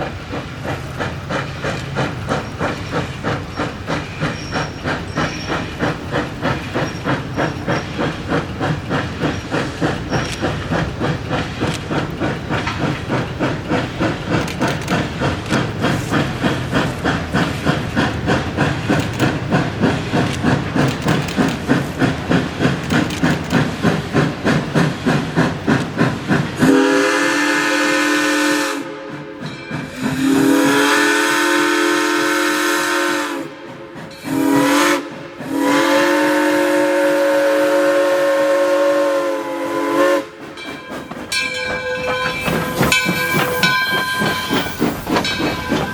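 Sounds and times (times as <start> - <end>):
steam locomotive exhaust chuffs: 0.0 - 45.9
steam locomotive chime whistle: 3.5 - 5.7, 26.6 - 45.9.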